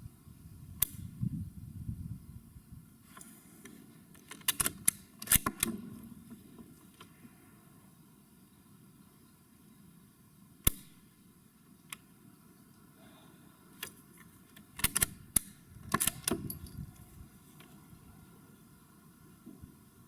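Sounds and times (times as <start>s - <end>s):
rifle bolt metallic clicks: 4.2s - 5.9s, 10.6s - 11.0s, 13.8s - 17.0s.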